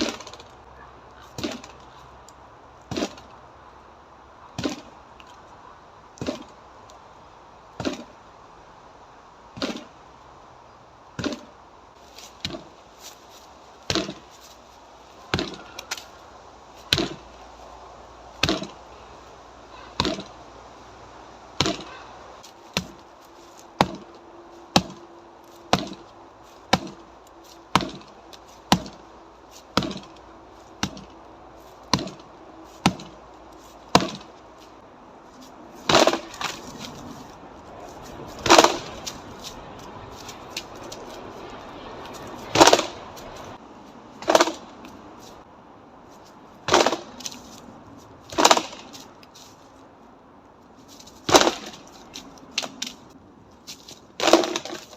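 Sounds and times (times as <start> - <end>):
strikes knocking on tree trunk: 13.8 - 14.3, 15.3 - 16.0, 16.8 - 17.3, 18.4 - 18.8, 21.6 - 23.1, 23.8 - 25.1, 25.7 - 26.1, 26.7 - 27.1, 27.7 - 30.2, 30.8 - 31.2, 31.8 - 33.2, 33.8 - 34.4, 35.8 - 36.7, 38.4 - 39.4, 42.5 - 43.0, 51.2 - 51.9.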